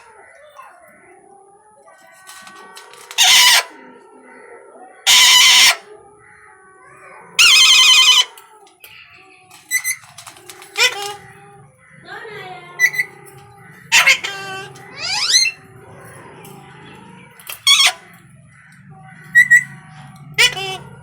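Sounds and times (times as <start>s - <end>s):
soft parrot chatter: 0.0s - 21.0s
parrot screeching: 2.0s - 3.8s, 5.1s - 5.9s, 7.4s - 8.4s, 9.5s - 11.3s, 12.8s - 13.3s, 13.9s - 15.7s, 17.4s - 18.2s, 19.3s - 19.8s, 20.4s - 21.0s
parrot short sharp calls: 3.1s - 3.7s.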